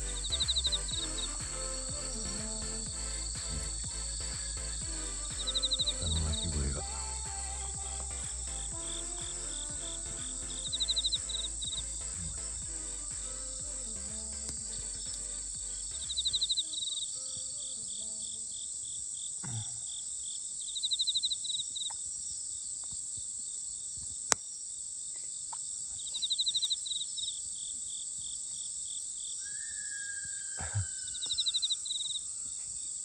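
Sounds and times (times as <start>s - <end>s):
background music: 0.0s - 16.6s
night insects chirring: 0.1s - 7.8s, 13.6s - 33.0s.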